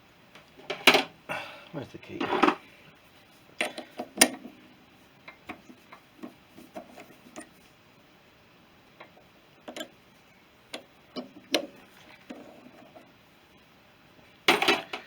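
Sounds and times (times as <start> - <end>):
metal clicks and knocks: 9.0 - 10.0.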